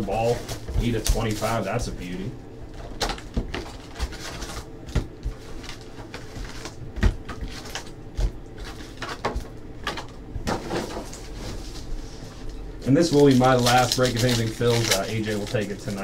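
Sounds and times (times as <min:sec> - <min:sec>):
cards tapping and rustling: 0:13.1 - 0:16.0.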